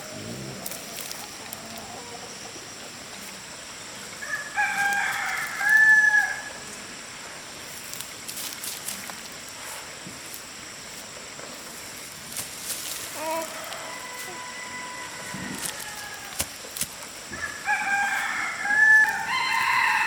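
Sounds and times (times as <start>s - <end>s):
rooster crowing: 4.2s - 6.6s, 13.2s - 16.5s, 17.4s - 20.0s.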